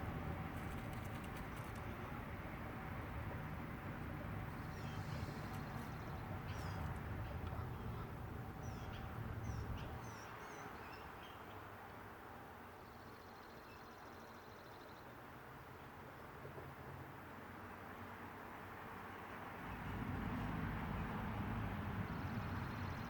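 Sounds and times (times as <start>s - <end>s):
low outdoor rumble: 0.0s - 10.2s
birds chirping: 4.6s - 11.6s.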